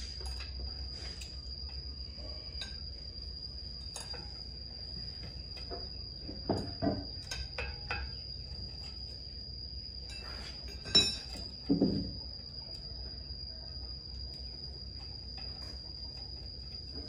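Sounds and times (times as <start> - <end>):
hand tools clinking on metal: 10.1 - 11.4.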